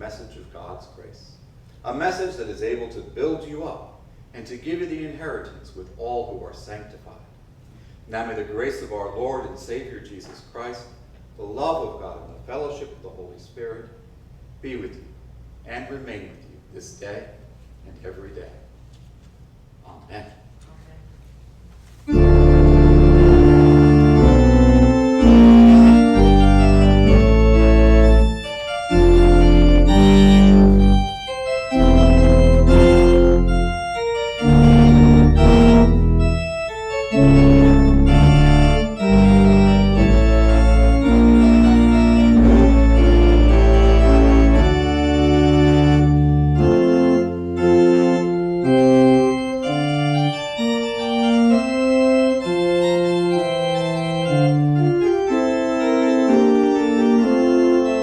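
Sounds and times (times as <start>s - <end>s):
organ playing loud chords: 22.1s - 58.0s.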